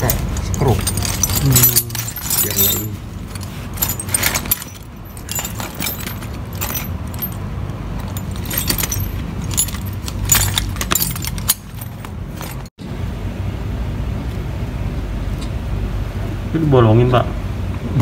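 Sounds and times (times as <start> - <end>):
small metal parts clinking: 0.0 - 12.7.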